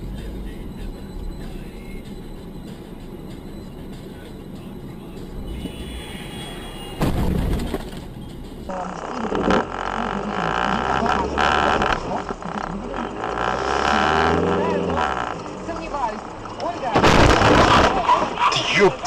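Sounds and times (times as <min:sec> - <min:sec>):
road and engine rumble in car: 0:00.0 - 0:19.0
vehicle collision crash: 0:07.0 - 0:08.1, 0:16.8 - 0:18.8.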